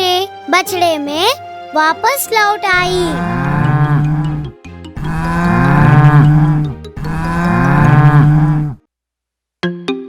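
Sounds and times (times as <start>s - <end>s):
cow mooing: 3.2s - 8.8s.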